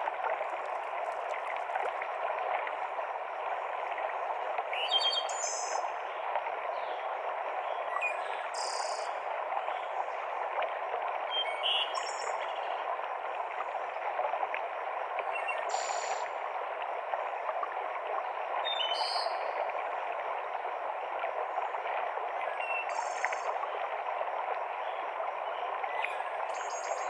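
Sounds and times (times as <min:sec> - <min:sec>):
stream cascading over rocks: 0:00.0 - 0:02.9.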